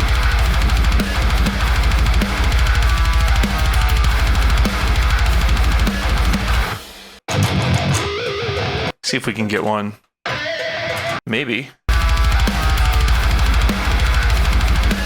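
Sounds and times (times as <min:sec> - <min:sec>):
programmed drums with double-kick: 0:00.0 - 0:06.8, 0:11.9 - 0:15.0
heavy distorted guitars: 0:00.0 - 0:09.0, 0:10.3 - 0:11.2, 0:11.9 - 0:15.0.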